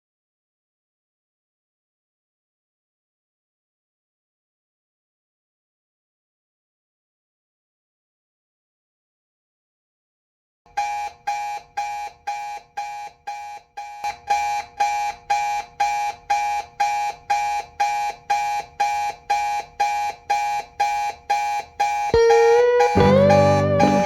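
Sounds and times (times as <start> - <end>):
alarm clock beeping: 10.7 - 24.0
slide guitar music: 22.2 - 24.0.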